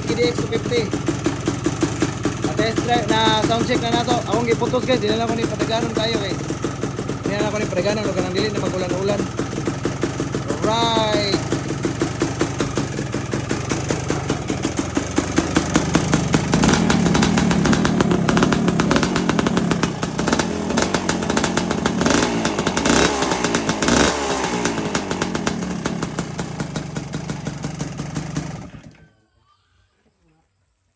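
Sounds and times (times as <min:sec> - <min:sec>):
two-stroke engine revving: 0:00.0 - 0:29.1.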